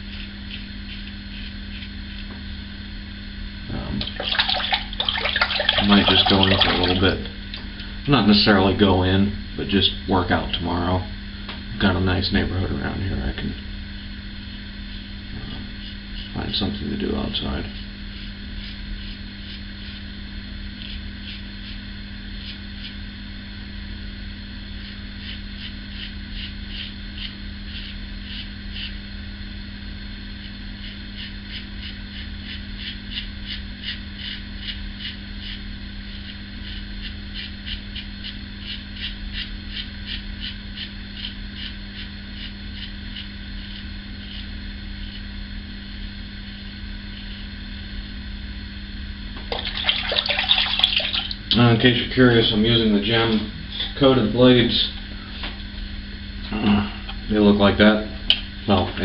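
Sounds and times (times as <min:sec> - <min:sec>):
razor scraping stubble: 0:00.0 - 0:02.4, 0:12.6 - 0:23.3, 0:24.7 - 0:29.2, 0:30.3 - 0:45.3
steady low hum: 0:00.0 - 0:59.0.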